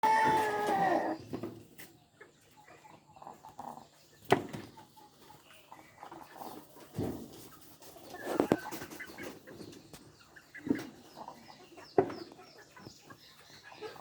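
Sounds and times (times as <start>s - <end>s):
chicken loud drawn-out call: 0.0s - 1.3s
chickens clucking softly: 0.0s - 14.0s.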